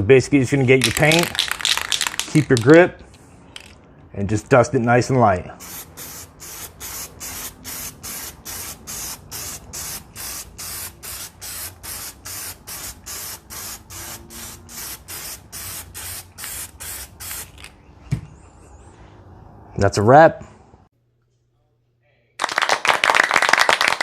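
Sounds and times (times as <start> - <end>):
spray paint can hissing: 0.8 - 2.4, 5.6 - 17.7.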